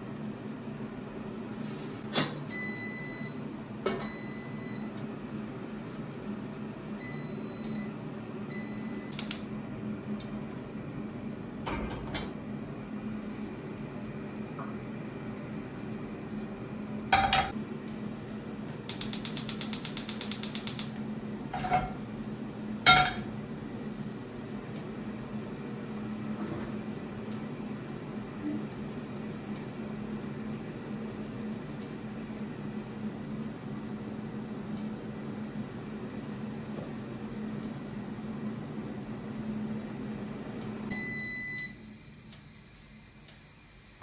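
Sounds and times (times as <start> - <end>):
appliance hum: 0.0 - 44.0
utensils clicking and knocking: 18.9 - 21.0.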